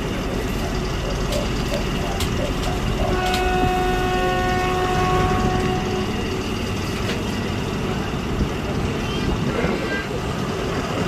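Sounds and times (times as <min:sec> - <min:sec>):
diesel train rumbling: 0:00.0 - 0:11.0
chord of steady horn tones: 0:03.0 - 0:06.3.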